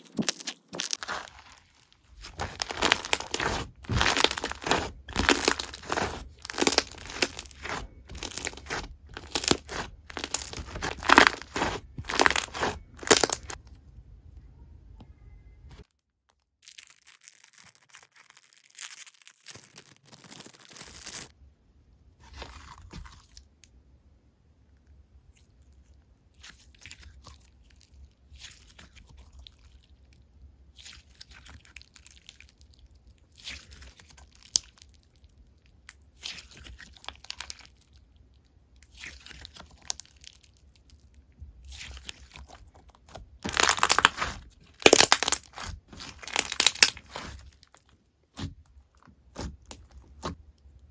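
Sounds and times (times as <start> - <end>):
slime squeezed by hand crackling: 0.0 - 13.6, 16.6 - 21.3, 41.6 - 48.6
faint low hum: 12.8 - 15.8.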